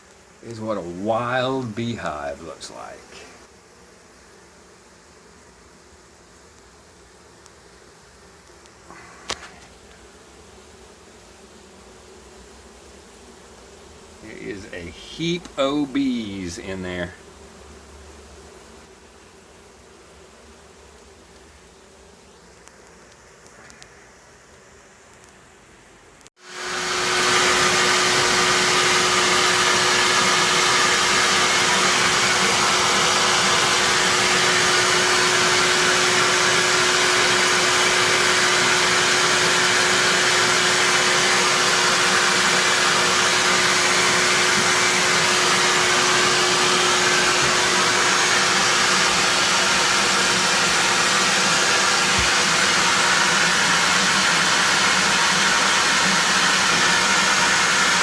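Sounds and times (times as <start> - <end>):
motor hum: 26.5 - 58.0.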